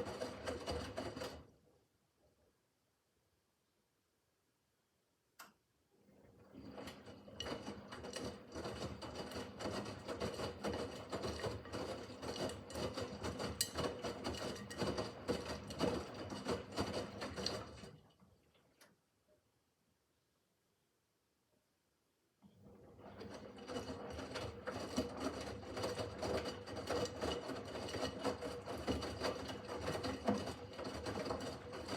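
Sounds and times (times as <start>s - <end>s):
washing machine motor hum: 0.0s - 1.7s, 6.0s - 18.8s, 22.6s - 31.9s.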